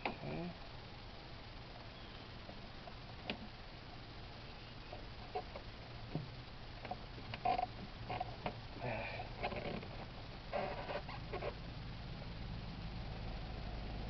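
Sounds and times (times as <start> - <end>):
short squeaks: 10.5 - 11.6.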